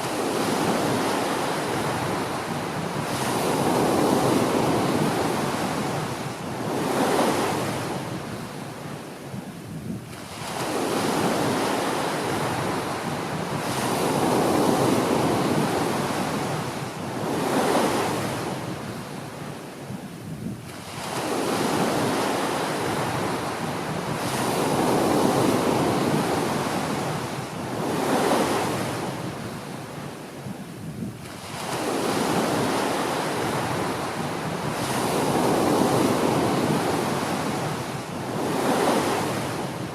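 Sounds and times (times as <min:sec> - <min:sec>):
small waves breaking on beach: 0:00.0 - 0:39.9.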